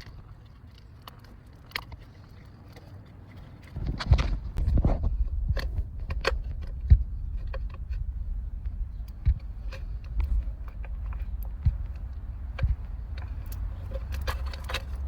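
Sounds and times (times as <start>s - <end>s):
steady low rumble: 3.3s - 15.0s.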